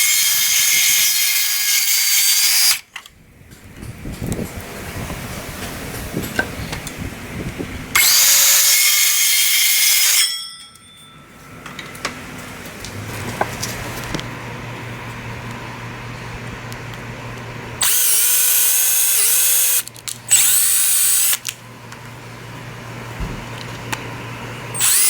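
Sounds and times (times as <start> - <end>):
circular saw cutting wood: 0.0 - 2.9, 7.9 - 10.3, 17.8 - 21.5, 24.7 - 25.0
steady low hum: 10.7 - 25.0.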